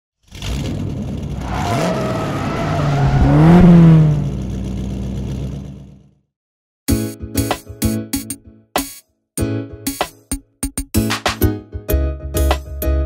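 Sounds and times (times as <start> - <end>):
car engine revving: 0.3 - 6.1.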